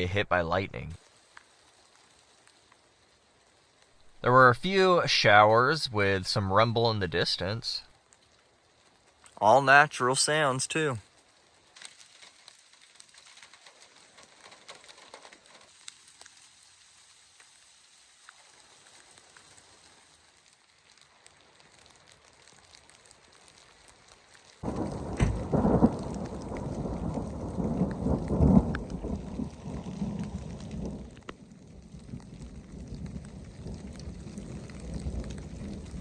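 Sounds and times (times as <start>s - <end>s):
light rain falling: 0.0s - 36.0s
rain drops ticking: 0.0s - 36.0s
thunder rumbling: 24.6s - 36.0s.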